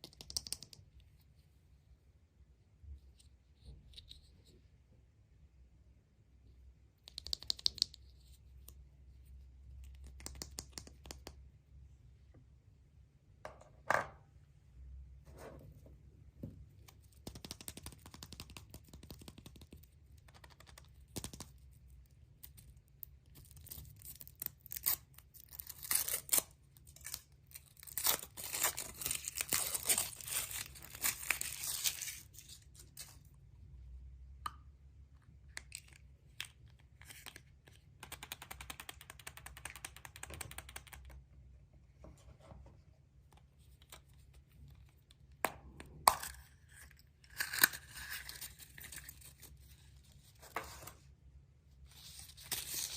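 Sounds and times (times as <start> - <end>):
clicks and taps: 7.0 - 8.8, 9.8 - 11.5.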